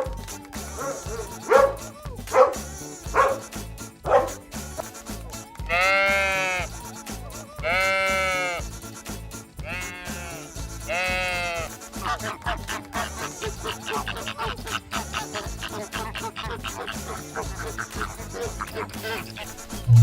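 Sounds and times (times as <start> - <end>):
background music: 0.0 - 20.0
dog barking: 0.8 - 4.4, 12.0 - 19.6
long bleats: 5.7 - 6.8, 7.5 - 8.7, 9.6 - 19.6.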